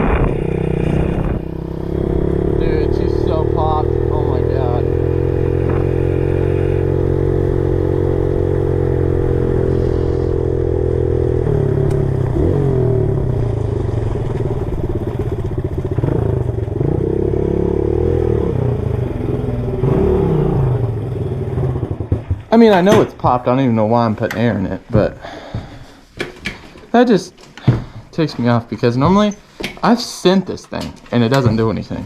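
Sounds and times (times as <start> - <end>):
pit bike engine revving: 0.0 - 22.6.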